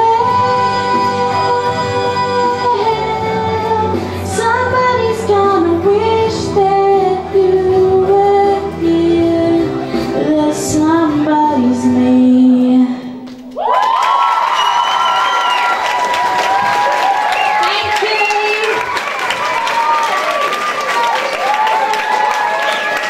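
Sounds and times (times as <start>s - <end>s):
musical accompaniment: 0.0s - 13.2s
woman singing: 0.0s - 13.2s.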